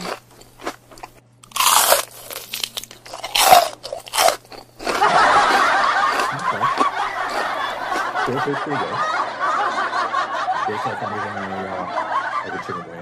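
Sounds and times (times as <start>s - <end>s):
person chewing with crunches: 0.0s - 8.3s.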